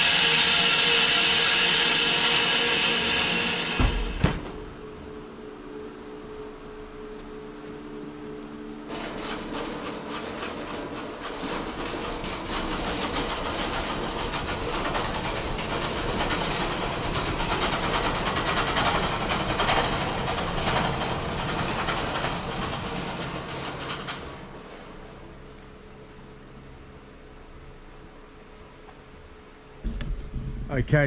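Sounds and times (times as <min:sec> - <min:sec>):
bandsaw blade cutting log: 0:00.0 - 0:04.6
motor hum: 0:01.0 - 0:11.1.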